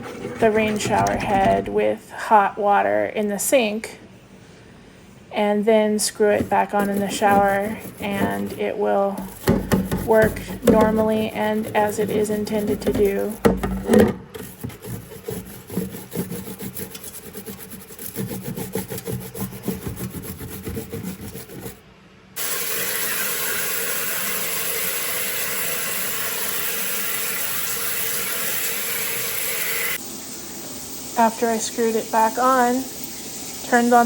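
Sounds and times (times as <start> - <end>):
tap water hissing: 0.0 - 1.9, 6.0 - 21.8, 22.4 - 34.0
stiff brush scrubbing: 6.0 - 21.8.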